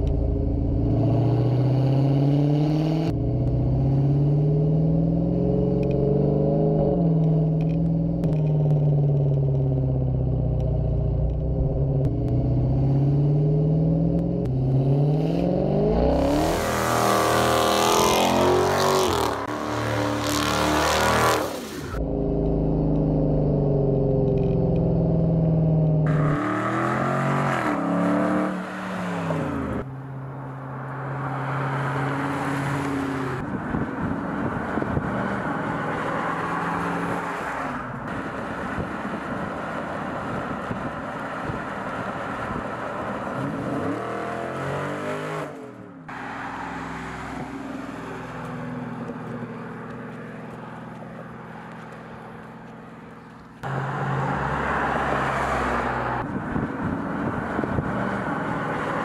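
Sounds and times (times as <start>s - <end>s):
car engine accelerating through gears: 0.0s - 29.9s.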